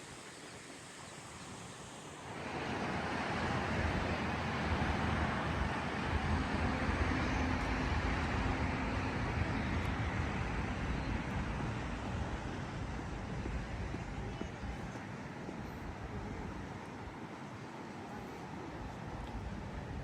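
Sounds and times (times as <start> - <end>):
vehicle passing by: 2.4 - 13.2.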